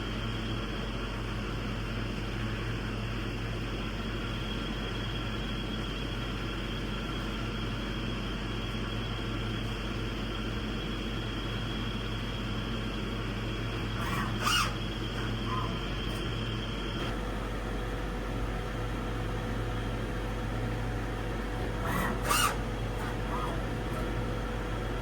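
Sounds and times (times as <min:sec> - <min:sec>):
grinding machine hum: 0:05.6 - 0:25.0
short squeal: 0:13.9 - 0:15.9, 0:21.9 - 0:22.6.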